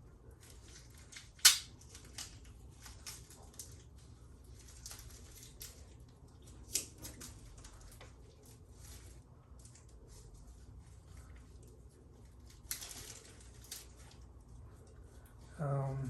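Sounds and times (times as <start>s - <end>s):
sharp snap: 1.4s - 1.7s.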